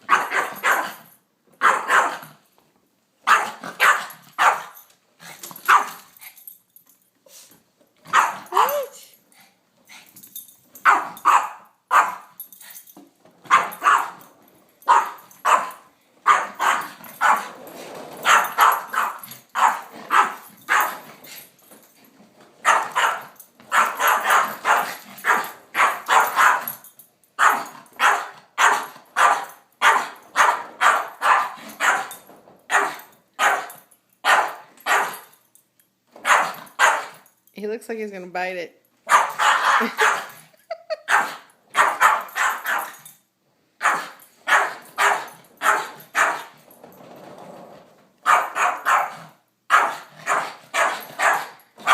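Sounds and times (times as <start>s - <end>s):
dog barking: 0.1s - 1.0s, 1.6s - 2.3s, 3.2s - 4.8s, 5.7s - 6.0s, 8.1s - 8.9s, 10.8s - 12.3s, 13.5s - 14.2s, 14.9s - 17.5s, 18.2s - 21.0s, 22.6s - 26.8s, 27.4s - 35.2s, 36.2s - 37.2s, 39.1s - 40.3s, 41.0s - 42.9s, 43.8s - 46.5s, 48.2s - 51.9s.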